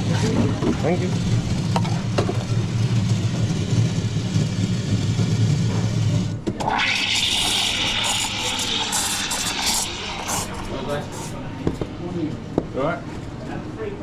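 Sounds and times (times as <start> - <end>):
espresso machine humming: 1.1 - 11.9
steam wand hissing: 6.7 - 11.4.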